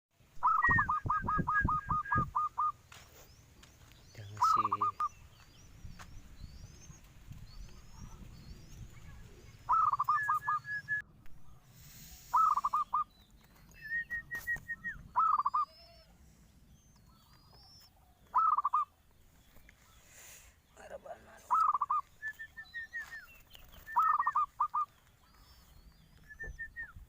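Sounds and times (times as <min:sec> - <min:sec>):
dove cooing: 0:00.4 - 0:02.8, 0:04.3 - 0:05.2, 0:07.6 - 0:13.1, 0:13.8 - 0:16.2, 0:17.1 - 0:18.9, 0:21.2 - 0:27.0
small bird chirping: 0:00.4 - 0:27.0.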